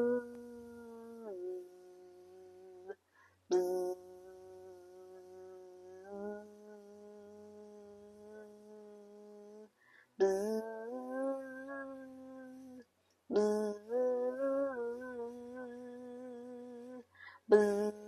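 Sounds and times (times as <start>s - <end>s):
person buzzing like a bee: 0.0s - 18.0s
quick breaths: 17.1s - 17.5s.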